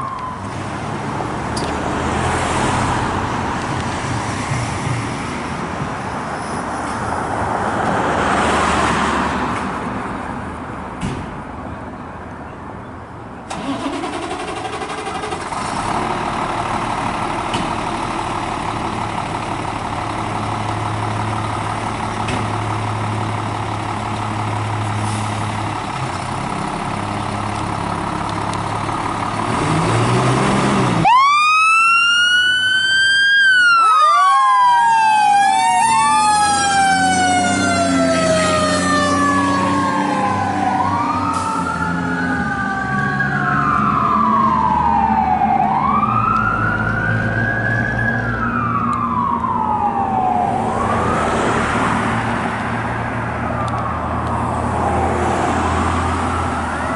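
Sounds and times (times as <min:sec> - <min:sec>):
mechanical siren wailing: 0:31.0 - 0:51.4.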